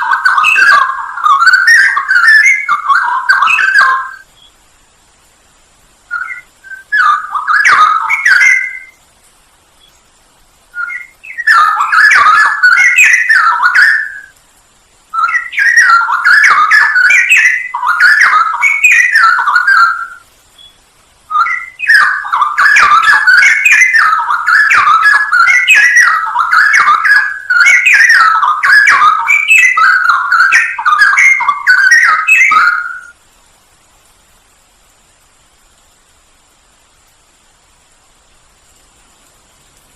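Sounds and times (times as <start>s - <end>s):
bird singing quick warbling phrases: 0.0s - 4.6s, 6.1s - 9.0s, 10.8s - 14.3s, 15.2s - 33.2s.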